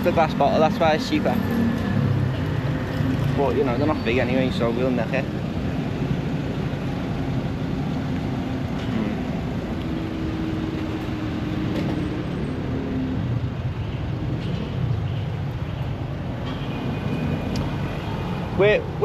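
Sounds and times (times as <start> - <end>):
vehicles passing: 0.0 - 19.0.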